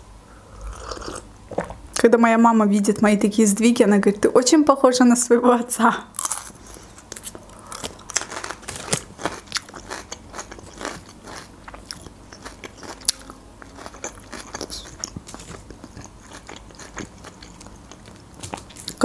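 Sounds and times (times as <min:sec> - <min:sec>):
crunchy chewing of raw pepper: 0:06.2 - 0:19.0.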